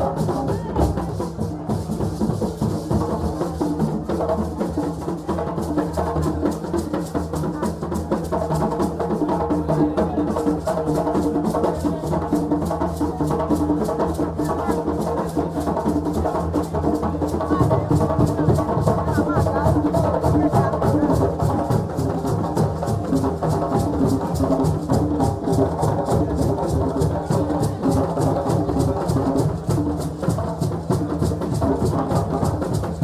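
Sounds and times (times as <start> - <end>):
drums playing fast rhythm: 0.0 - 33.0.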